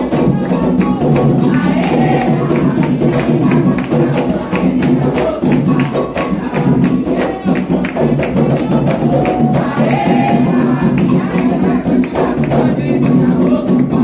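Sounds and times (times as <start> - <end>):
hand drums fast rhythm: 0.0 - 14.0
person singing: 0.0 - 14.0.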